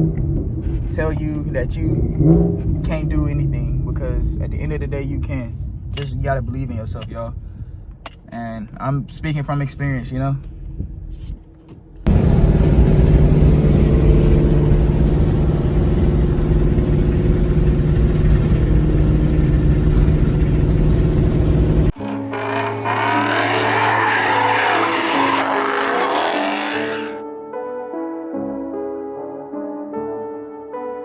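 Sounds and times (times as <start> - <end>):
car engine and exhaust running: 12.1 - 27.2.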